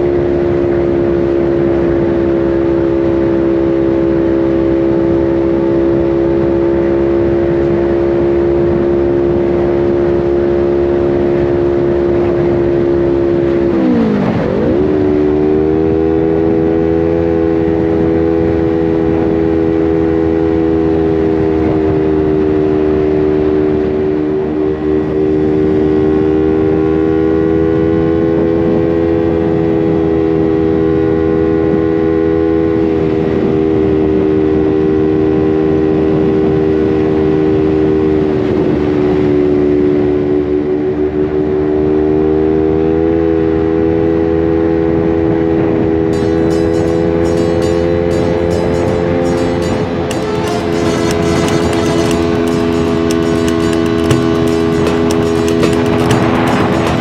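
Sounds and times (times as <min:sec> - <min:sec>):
motorcycle engine running: 0:46.1 - 0:57.0.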